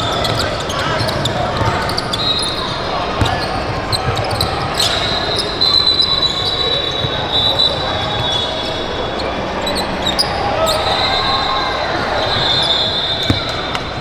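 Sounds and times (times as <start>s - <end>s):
basketballs bouncing on hardwood: 0.0s - 2.5s, 3.2s - 5.1s, 12.0s - 14.0s
murmur of voices: 0.0s - 14.0s.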